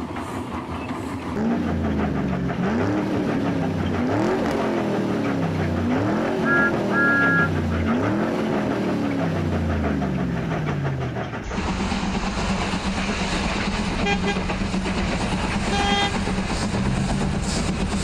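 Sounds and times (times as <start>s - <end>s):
train running: 0.0s - 18.0s
train horn toots: 6.4s - 7.6s, 14.0s - 14.5s, 15.6s - 16.3s.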